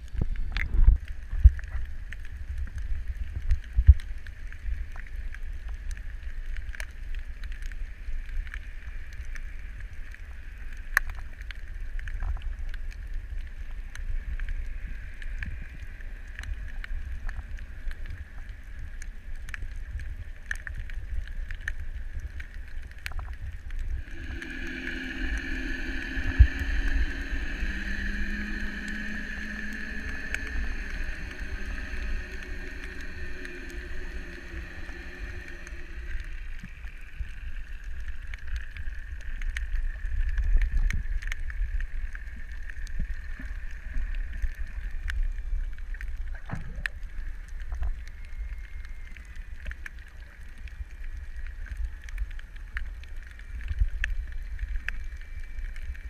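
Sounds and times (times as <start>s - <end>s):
faint clicks: 0.0s - 56.0s
underwater low rumble: 0.0s - 56.0s
distant motor hum: 24.0s - 36.8s.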